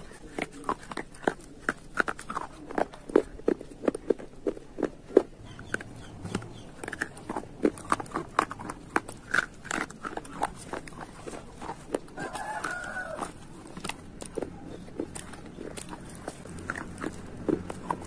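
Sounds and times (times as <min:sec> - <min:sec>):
crunching and chewing: 0:00.0 - 0:18.0
rooster crowing: 0:12.1 - 0:13.4.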